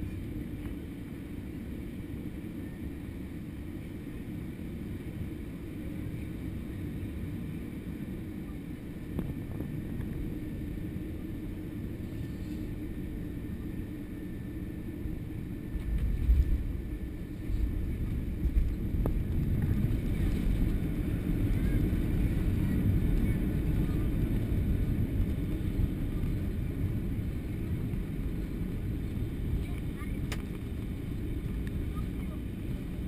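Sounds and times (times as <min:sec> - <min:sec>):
jet airliner engines rumbling: 0:00.0 - 0:33.0.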